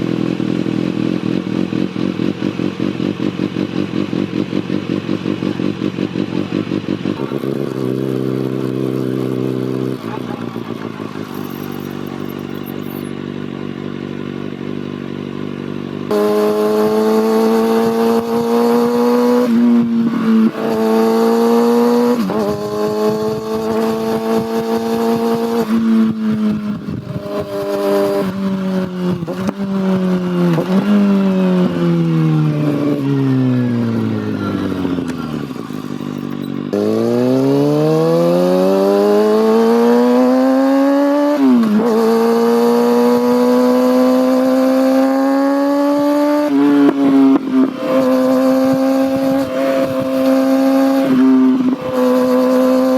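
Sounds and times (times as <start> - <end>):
motorcycle engine accelerating: 0.0 - 52.9
engine rev blips on downshifts: 16.1 - 52.9.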